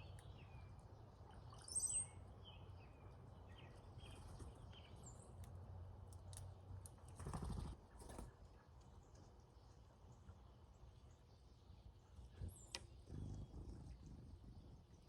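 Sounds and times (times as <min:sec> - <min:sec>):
bird chips and gurgling notes: 0:00.2 - 0:02.8.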